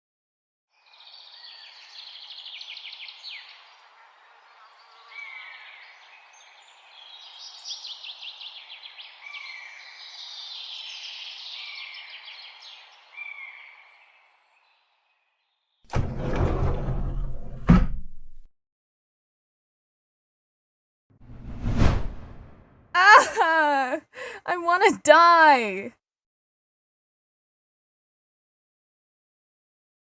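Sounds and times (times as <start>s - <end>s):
birds chirping and trilling: 0.8s - 15.7s.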